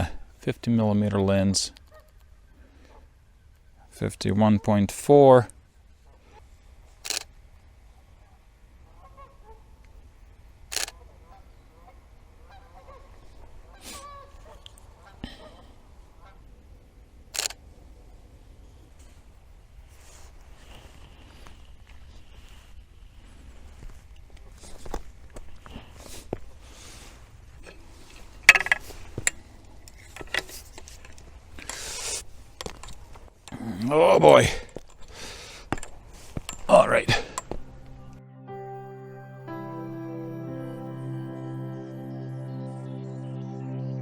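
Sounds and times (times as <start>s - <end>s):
geese honking: 11.2s - 15.2s.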